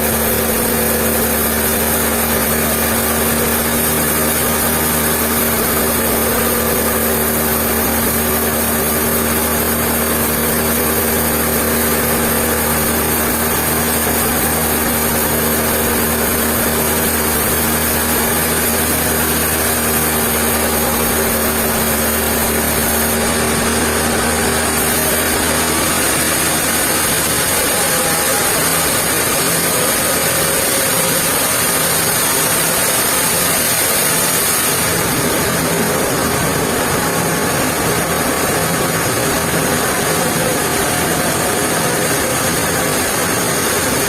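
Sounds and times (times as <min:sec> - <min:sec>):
low hum: 0:00.0 - 0:44.0
sawmill machinery running: 0:00.0 - 0:44.0.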